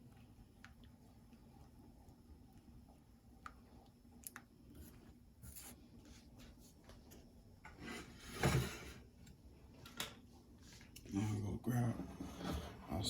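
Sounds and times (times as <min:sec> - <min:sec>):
rustling scrape: 0:12.0 - 0:12.9.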